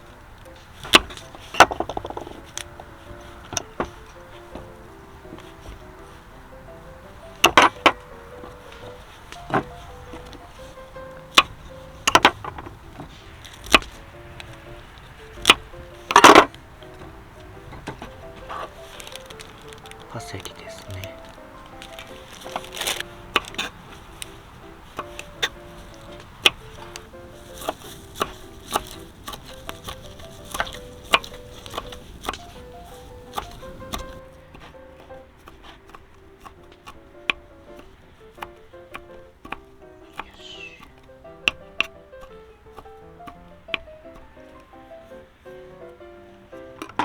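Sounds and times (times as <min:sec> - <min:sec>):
background music: 0:00.0 - 0:47.0
knife chopping on cutting board: 0:17.8 - 0:45.2.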